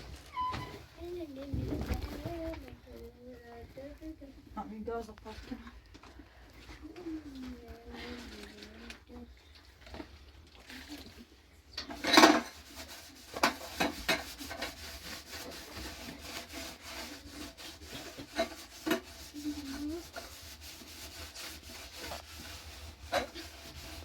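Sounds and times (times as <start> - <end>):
scraping and rubbing: 1.0 - 5.8, 6.6 - 9.2, 11.8 - 24.0.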